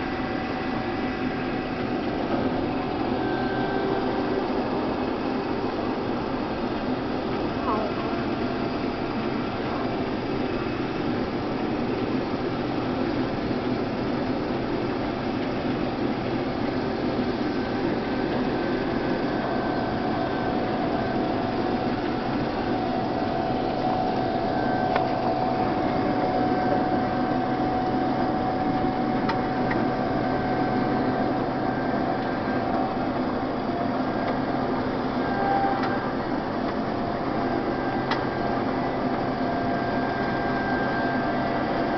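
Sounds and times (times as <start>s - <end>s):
combine harvester drone: 0.0s - 41.9s
machinery whine: 0.0s - 41.9s.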